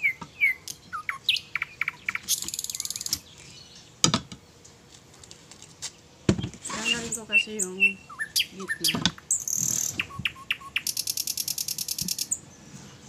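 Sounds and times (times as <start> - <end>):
buzzy high bird trill: 0.0 - 3.6, 6.7 - 12.5
small birds chirping: 0.0 - 4.7, 5.8 - 13.0.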